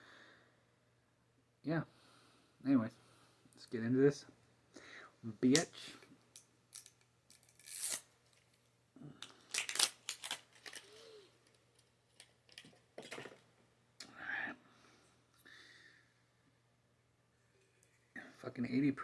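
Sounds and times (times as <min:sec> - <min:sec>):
wrapping tearing: 0:06.7 - 0:08.1, 0:09.2 - 0:11.2
wrapping crinkling: 0:09.2 - 0:13.2.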